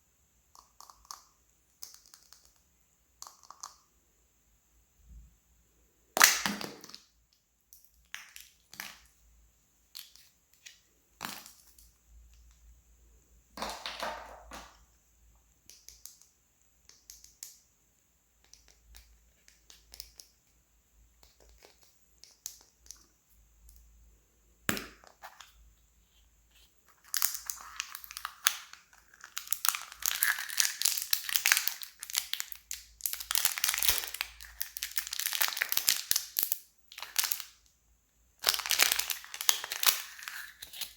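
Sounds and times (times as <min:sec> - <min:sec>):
wrappers crinkling: 0:29.1 - 0:37.4, 0:38.4 - 0:40.9
packaging clicks and rustles: 0:38.4 - 0:40.9.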